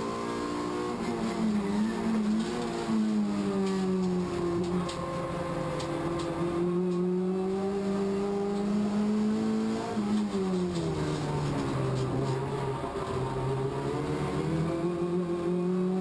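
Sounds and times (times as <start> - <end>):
race car engine revving: 0.0 - 16.0.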